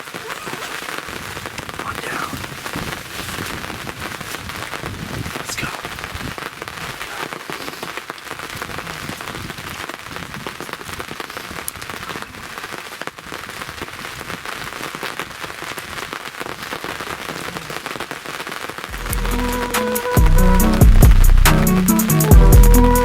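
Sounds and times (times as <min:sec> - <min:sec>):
heavy rain pattering: 0:00.0 - 0:23.0.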